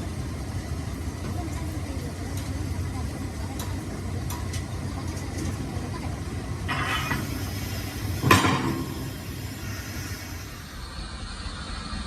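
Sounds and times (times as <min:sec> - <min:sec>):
low engine rumble: 0:00.0 - 0:12.0
rush of noise: 0:06.1 - 0:12.0.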